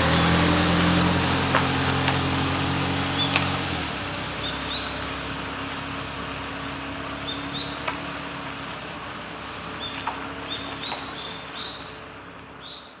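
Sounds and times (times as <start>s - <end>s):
river water rushing: 0.0s - 9.9s.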